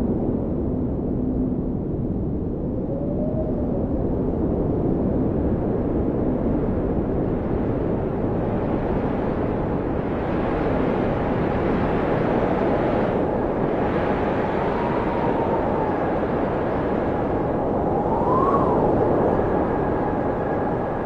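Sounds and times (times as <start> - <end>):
strong blizzard wind: 0.0 - 21.0
faint howling whistle: 2.6 - 4.2, 14.2 - 21.0.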